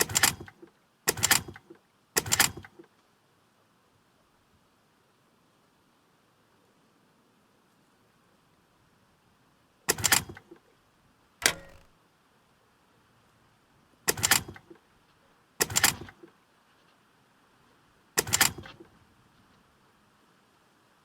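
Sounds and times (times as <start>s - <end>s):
short clattering knocks: 11.4s - 11.9s.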